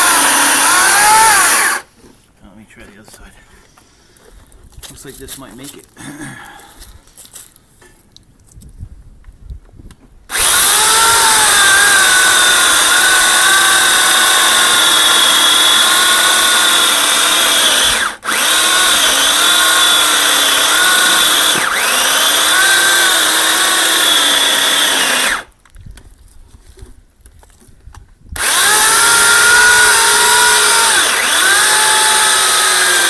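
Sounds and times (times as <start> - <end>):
electric chainsaw cutting log: 0.0 - 1.9, 10.3 - 25.5, 28.4 - 33.0.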